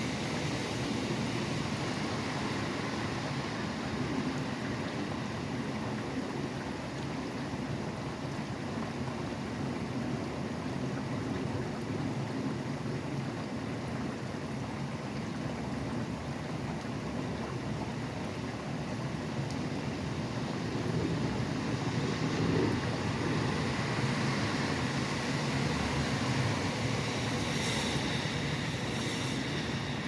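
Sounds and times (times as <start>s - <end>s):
rain falling: 18.0s - 30.0s
highway traffic hum: 19.0s - 30.0s.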